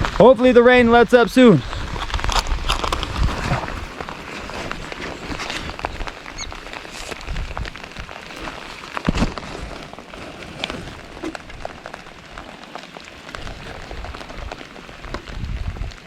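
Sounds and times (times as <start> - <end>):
raindrops tapping close by: 0.0 - 16.0
steady rain: 0.0 - 16.0.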